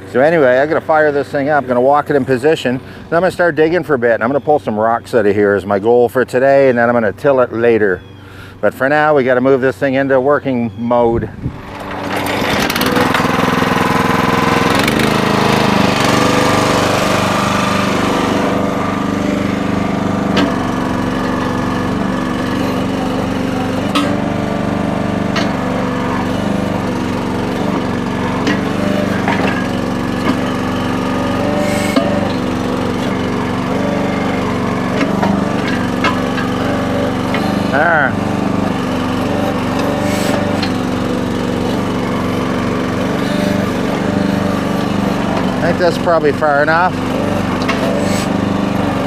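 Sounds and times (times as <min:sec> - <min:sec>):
small gasoline engine running: 0:11.5 - 0:49.0.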